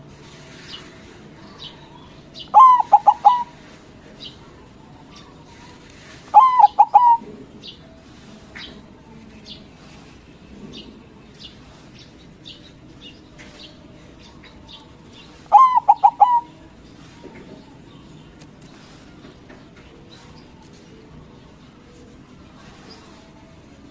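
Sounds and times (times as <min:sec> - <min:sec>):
small birds chirping: 0:00.0 - 0:23.9
dove cooing: 0:02.4 - 0:03.8, 0:05.4 - 0:07.5, 0:15.4 - 0:17.2.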